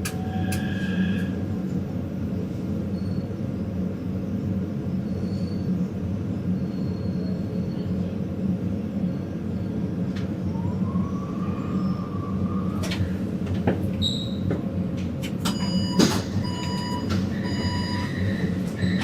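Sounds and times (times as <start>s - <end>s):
train rumble and hum: 0.0s - 19.0s
rising whine: 10.2s - 13.4s.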